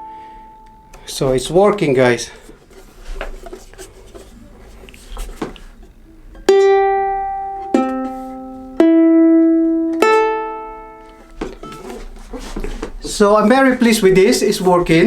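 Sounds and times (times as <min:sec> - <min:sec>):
faint handling taps: 0:00.9 - 0:06.0
ukulele chords strummed: 0:06.0 - 0:12.0.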